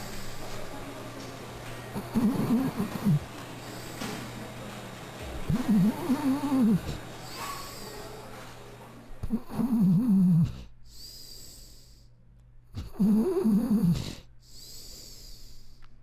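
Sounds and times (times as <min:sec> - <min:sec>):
dog making snore-like sounds: 0:01.9 - 0:03.3, 0:05.5 - 0:08.0, 0:09.2 - 0:11.9, 0:12.8 - 0:15.5.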